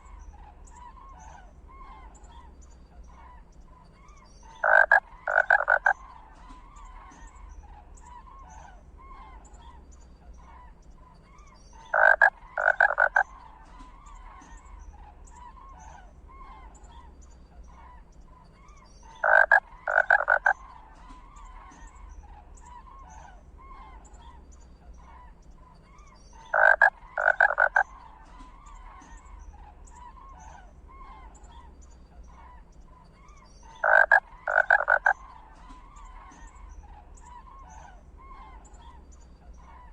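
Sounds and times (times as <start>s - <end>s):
faint chirping: 0.0s - 39.9s
rasping croaking animal calls: 4.4s - 9.4s, 11.8s - 17.1s, 19.0s - 39.9s.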